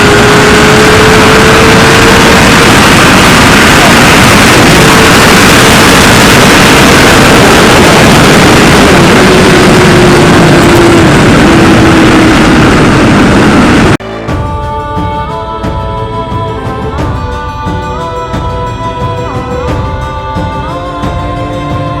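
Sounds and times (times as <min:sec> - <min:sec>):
wind roar on helmet: 0:00.0 - 0:14.0
motorcycle engine: 0:00.0 - 0:22.0.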